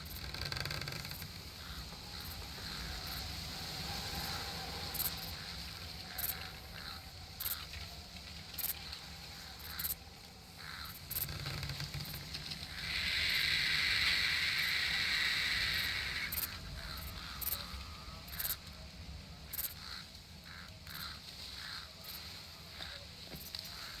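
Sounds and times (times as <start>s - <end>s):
low steady rumble: 11.8s - 21.8s.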